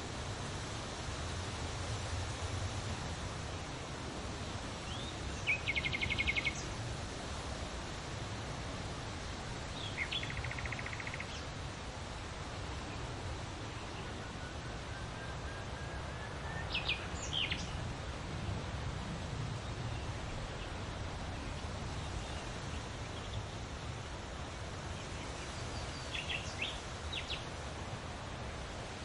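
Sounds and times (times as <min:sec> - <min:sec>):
steady background hiss: 0:00.0 - 0:29.0
bird chirps: 0:09.8 - 0:11.4.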